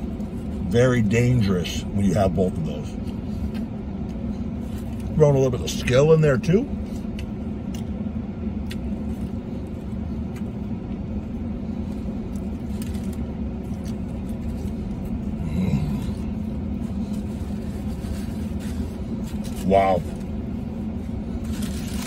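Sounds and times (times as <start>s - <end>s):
vehicle engine idling: 0.0s - 22.0s
sandwich wrapper rustling: 8.7s - 22.0s.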